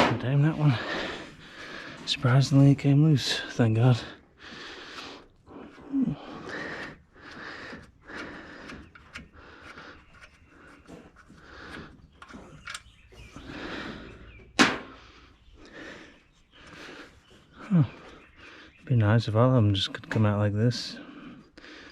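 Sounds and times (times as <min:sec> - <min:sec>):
wrench scraping and clicking: 0:07.7 - 0:12.9.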